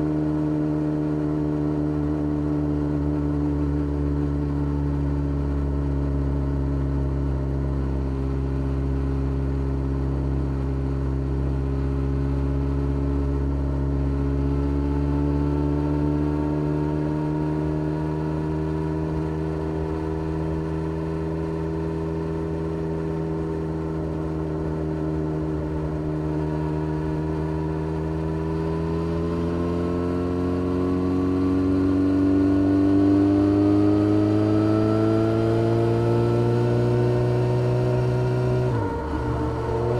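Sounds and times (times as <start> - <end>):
motorcycle engine revving: 14.1 - 39.9.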